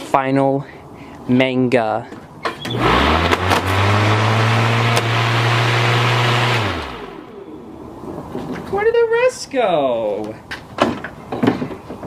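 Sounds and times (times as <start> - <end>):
lawnmower engine running: 2.8 - 7.6.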